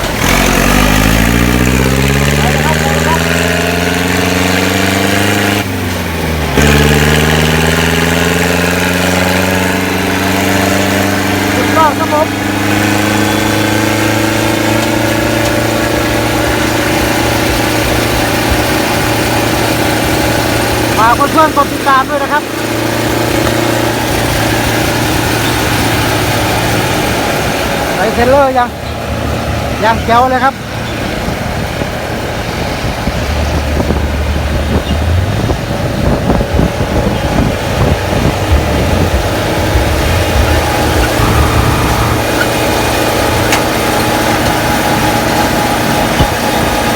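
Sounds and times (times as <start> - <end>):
tractor diesel engine running: 0.0 - 46.9
wind buffeting microphone: 30.6 - 46.9.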